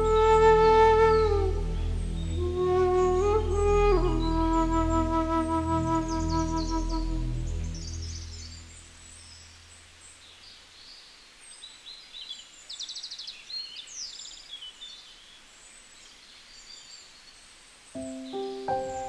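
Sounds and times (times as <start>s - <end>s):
birds chirping and whistling: 0.0s - 8.8s, 18.0s - 19.0s
background music with held notes: 0.0s - 9.1s, 18.0s - 19.0s.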